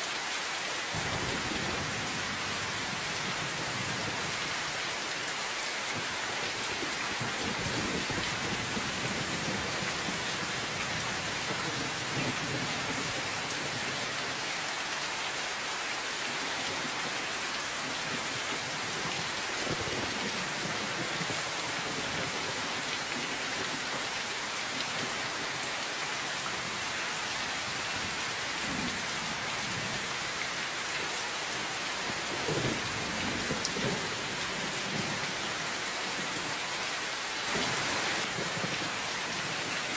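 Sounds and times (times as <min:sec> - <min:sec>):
steady dense rainfall: 0:00.0 - 0:39.9
distant thunder rumbling: 0:01.0 - 0:04.4.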